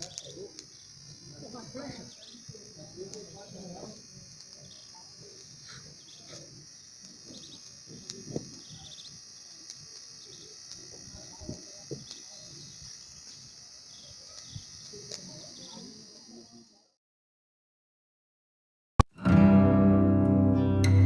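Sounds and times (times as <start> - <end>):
birds chirping: 0.0 - 16.6
high-pitched insect drone: 0.0 - 16.9.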